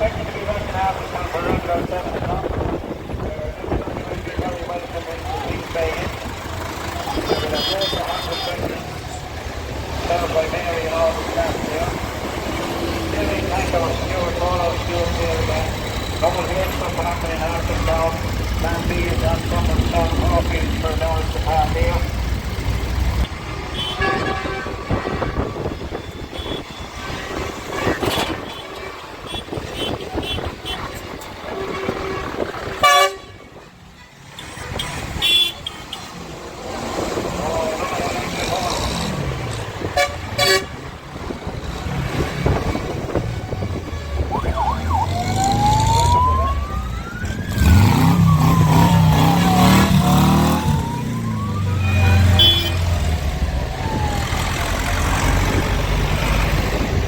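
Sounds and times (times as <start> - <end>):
engines running: 0.0 - 23.9, 41.2 - 57.0
heavy engine rumble: 0.0 - 32.8
tractor horns tooting: 5.6 - 9.2, 23.5 - 36.2, 39.8 - 41.0, 43.5 - 46.7, 51.4 - 53.3
siren wailing: 43.4 - 55.7.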